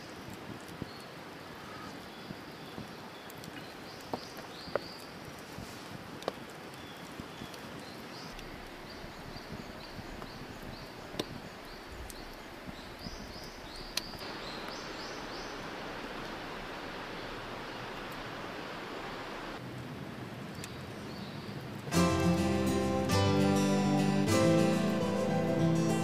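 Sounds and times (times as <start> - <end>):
campfire crackling and popping: 2.8 - 8.8.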